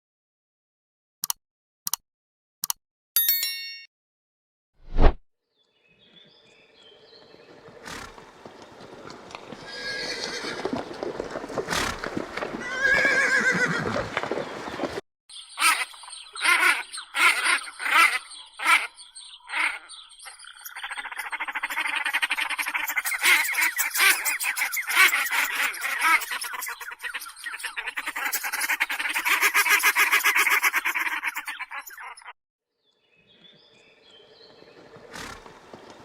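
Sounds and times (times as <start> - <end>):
horse whinnying: 9.6 - 10.9, 11.6 - 14.4.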